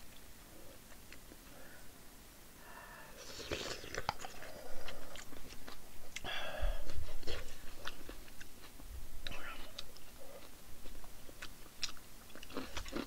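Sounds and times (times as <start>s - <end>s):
breathing: 1.5s - 2.0s, 2.6s - 3.4s, 4.3s - 5.2s, 6.2s - 6.9s.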